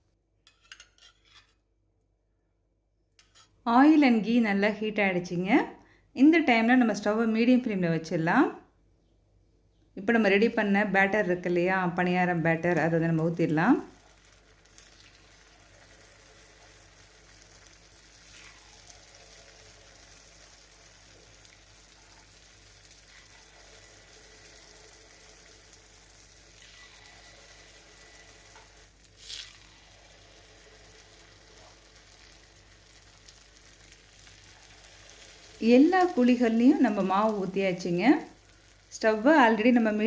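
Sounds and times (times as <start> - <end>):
batter sizzling in hot oil: 12.5 - 40.0.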